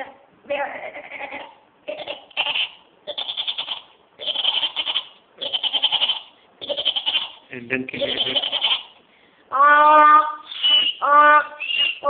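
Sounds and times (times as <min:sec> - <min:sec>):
man imitating donkey braying: 0:08.0 - 0:08.8, 0:09.5 - 0:12.0.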